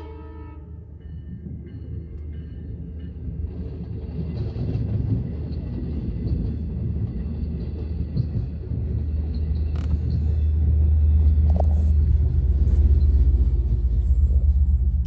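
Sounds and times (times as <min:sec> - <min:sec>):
diesel train passing: 0:00.0 - 0:15.0.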